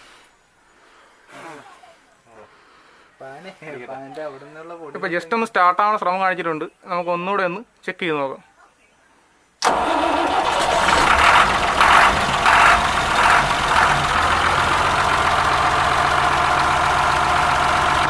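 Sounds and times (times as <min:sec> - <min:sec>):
starter motor cranking diesel engine: 0:09.6 - 0:18.0.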